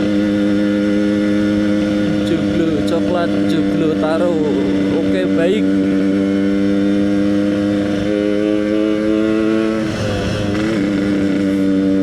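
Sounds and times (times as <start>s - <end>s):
two-stroke motorcycle engine running: 0.0s - 12.0s.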